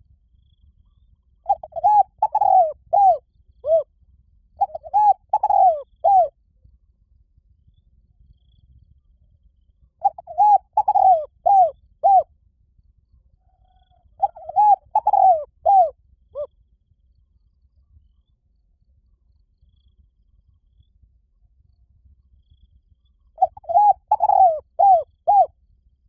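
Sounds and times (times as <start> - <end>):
dove cooing: 1.5 - 3.9, 4.6 - 6.3, 10.0 - 12.3, 13.7 - 16.5, 23.4 - 25.5.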